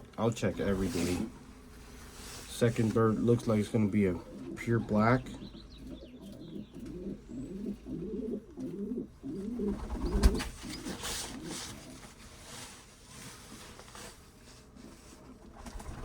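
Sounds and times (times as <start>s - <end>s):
pigeon cooing: 3.0s - 12.1s.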